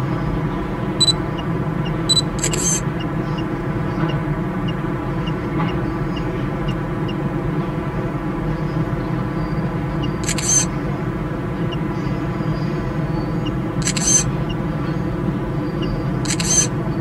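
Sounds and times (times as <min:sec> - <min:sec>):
sharp clicks: 0:02.1 - 0:02.8, 0:10.2 - 0:10.7, 0:13.8 - 0:14.3, 0:16.3 - 0:16.7.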